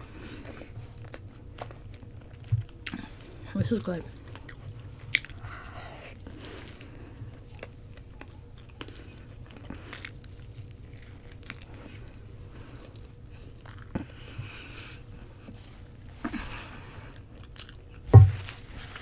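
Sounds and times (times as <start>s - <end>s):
person chewing: 6.1s - 14.9s
sharp knock: 18.1s - 18.6s
steady low hum: 18.1s - 19.0s.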